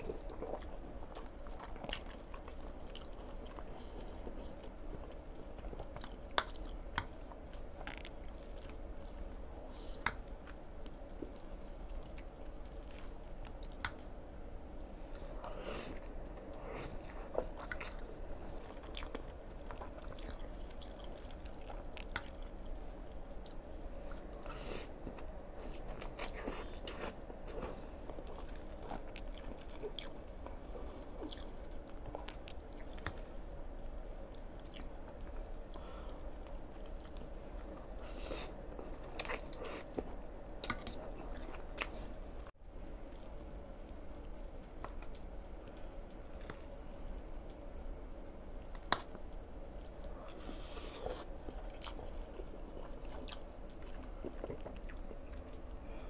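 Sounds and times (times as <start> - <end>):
chewing noodles: 0.0 - 14.2, 15.1 - 42.5, 48.6 - 56.0.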